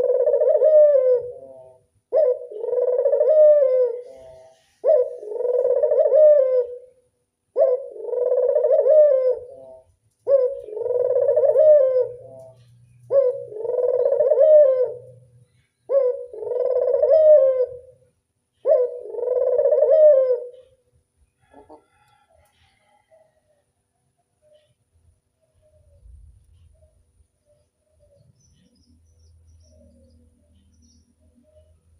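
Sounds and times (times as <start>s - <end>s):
dove cooing: 0.0s - 20.8s.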